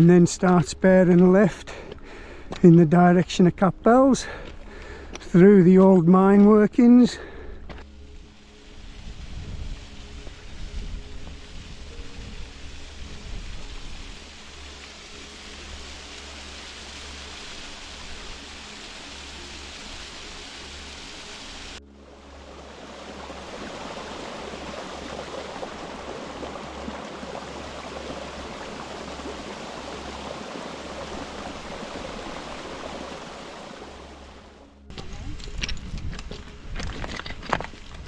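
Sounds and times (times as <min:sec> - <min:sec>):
small waterfall rushing: 0:08.0 - 0:34.8.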